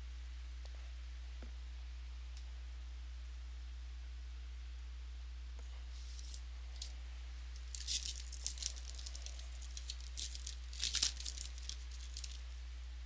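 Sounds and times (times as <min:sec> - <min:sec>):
low electrical hum: 0:00.0 - 0:13.0
wrapper torn and crinkled: 0:06.1 - 0:12.7.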